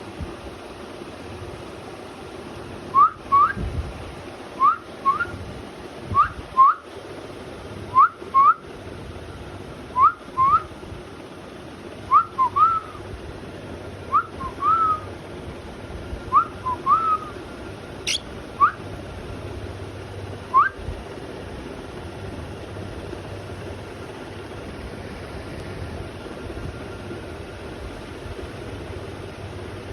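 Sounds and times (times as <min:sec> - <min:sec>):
cockatiel whistling: 0:04.6 - 0:05.3, 0:14.1 - 0:15.1, 0:16.4 - 0:17.4, 0:18.0 - 0:18.8
bird chirp: 0:18.0 - 0:18.3.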